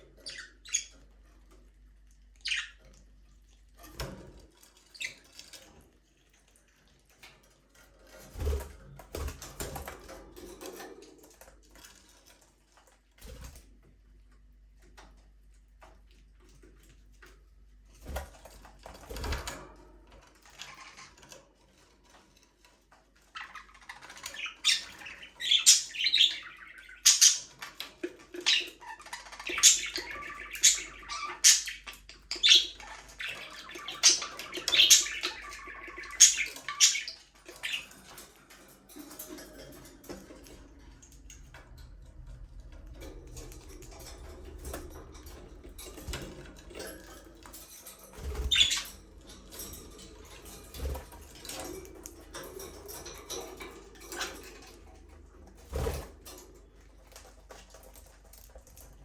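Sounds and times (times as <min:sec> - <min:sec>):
budgies chirping: 0:00.0 - 0:01.2, 0:02.4 - 0:03.0, 0:23.3 - 0:39.3, 0:48.1 - 0:54.8.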